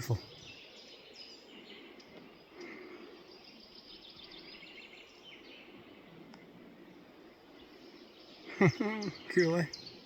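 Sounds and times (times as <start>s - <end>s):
distant birdsong chirping: 0.0s - 10.0s.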